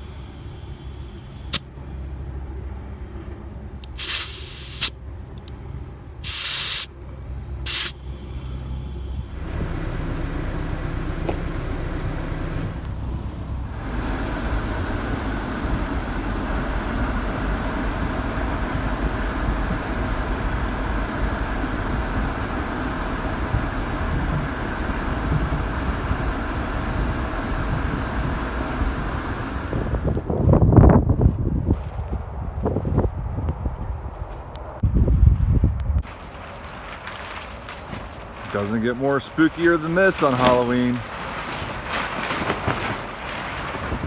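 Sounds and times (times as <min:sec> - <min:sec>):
compressed air hissing: 0:00.0 - 0:01.6, 0:03.8 - 0:04.9, 0:06.2 - 0:12.9
car engine running: 0:00.0 - 0:30.6.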